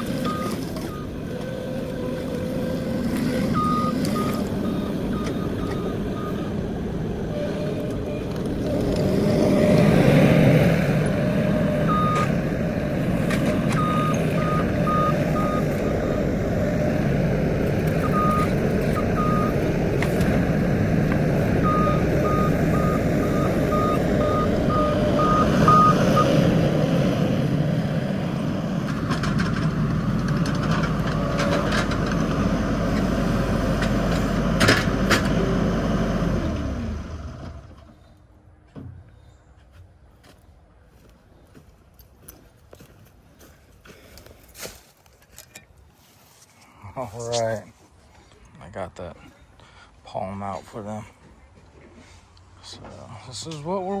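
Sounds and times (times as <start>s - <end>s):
reversing alarm beeping: 0.0s - 9.0s, 11.0s - 27.2s
skid steer engine running: 0.0s - 41.1s.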